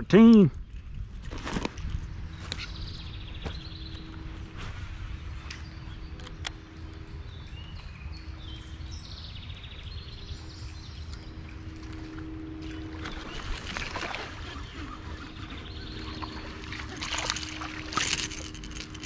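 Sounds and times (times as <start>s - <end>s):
low outdoor rumble: 0.0s - 19.0s
birds chirping: 1.8s - 19.0s
bird trill: 12.3s - 19.0s.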